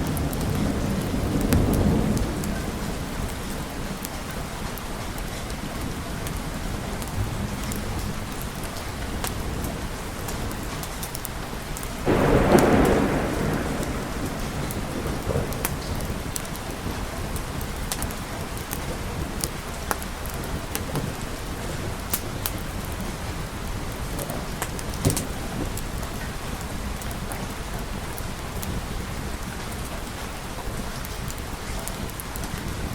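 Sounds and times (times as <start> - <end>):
thunderclap rumbling: 0.0 - 4.0, 12.0 - 19.4
steady rain: 0.0 - 32.9.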